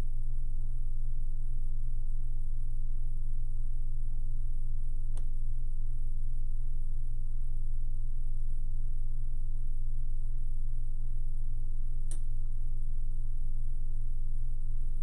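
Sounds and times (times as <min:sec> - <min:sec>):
low electrical hum: 0:00.0 - 0:15.0
click: 0:05.1 - 0:05.4, 0:12.0 - 0:12.3.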